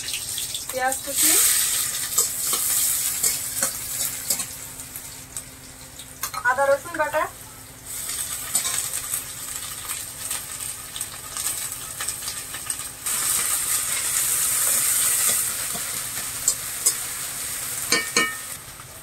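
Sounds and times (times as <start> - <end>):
onion sizzling in hot oil: 0.0 - 19.0
spoon scraping a pan: 8.1 - 8.9, 13.1 - 17.1.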